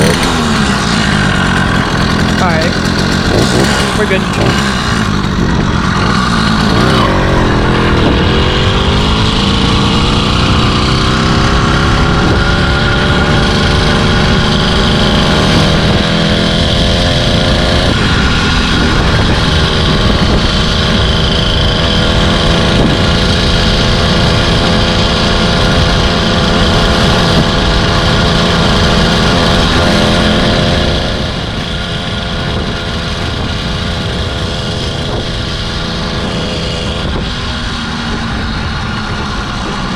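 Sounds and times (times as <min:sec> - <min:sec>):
two-stroke engine running: 0:00.0 - 0:39.9.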